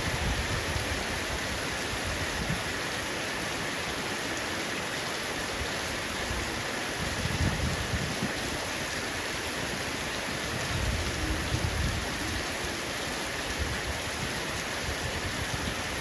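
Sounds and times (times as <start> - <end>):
heavy rain on a roof: 0.0 - 16.0.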